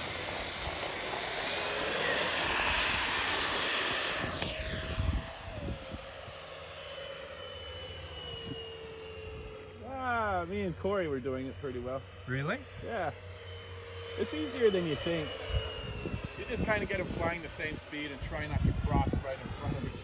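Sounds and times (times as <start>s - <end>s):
electric model airplane motor whining: 0.0s - 20.0s.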